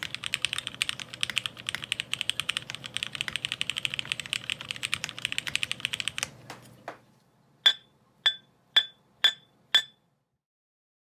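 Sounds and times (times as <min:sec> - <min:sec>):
typing on mechanical keyboard: 0:00.0 - 0:06.4
ringing clinks on ceramic: 0:07.7 - 0:10.0.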